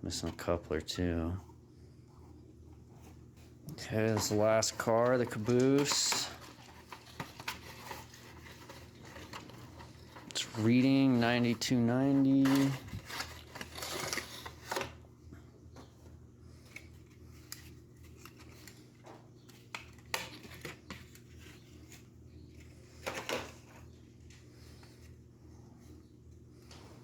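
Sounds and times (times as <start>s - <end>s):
faint steady hum: 0.0s - 27.0s
packaging rustling: 3.8s - 15.0s.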